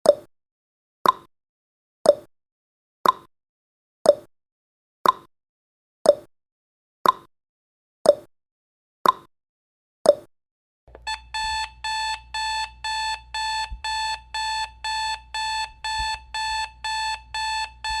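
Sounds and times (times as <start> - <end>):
clock ticking: 10.9 - 18.0
alarm clock beeping: 11.0 - 18.0.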